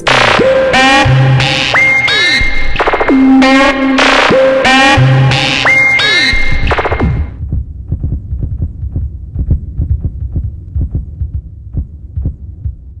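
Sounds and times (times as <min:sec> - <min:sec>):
heartbeat thumps: 0:04.2 - 0:13.0.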